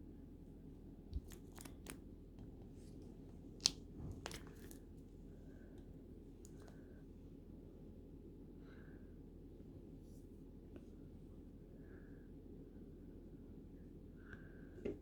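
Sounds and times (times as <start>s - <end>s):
faint steady hum: 0.0s - 15.0s
crinkly rustles of handling: 1.2s - 5.2s.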